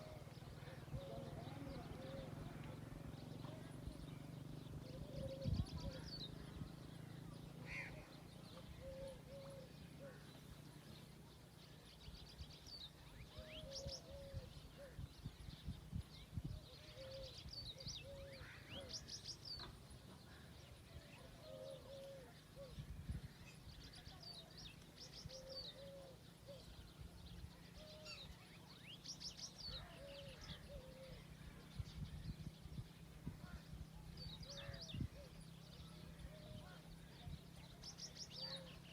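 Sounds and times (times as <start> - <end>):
dove cooing: 0.0 - 4.0, 4.8 - 6.5, 8.6 - 10.3, 13.4 - 15.0, 16.8 - 19.0, 21.2 - 22.8, 25.3 - 26.8, 29.7 - 31.5
birds chirping and trilling: 0.0 - 38.9.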